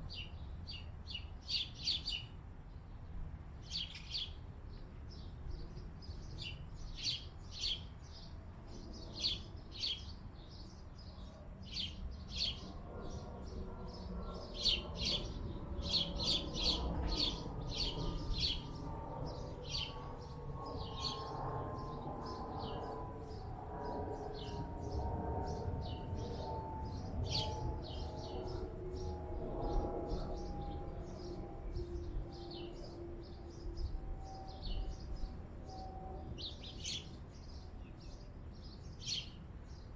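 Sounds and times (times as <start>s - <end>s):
small birds chirping: 0.1s - 39.9s
steady drone falling in pitch: 15.9s - 37.0s.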